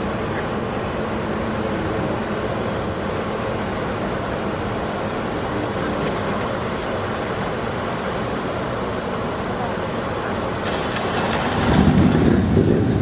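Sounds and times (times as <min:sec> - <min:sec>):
motorcycle engines running: 0:10.6 - 0:13.0.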